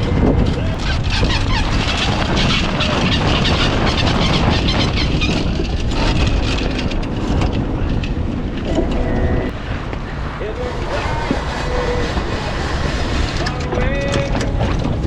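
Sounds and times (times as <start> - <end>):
water noise: 0.0 - 15.0
wind: 0.0 - 15.0
boat motor droning: 5.7 - 15.0.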